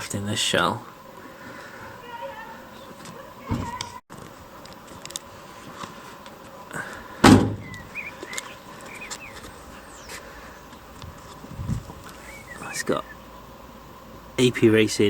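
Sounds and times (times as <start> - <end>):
car door slamming: 7.2 - 7.8.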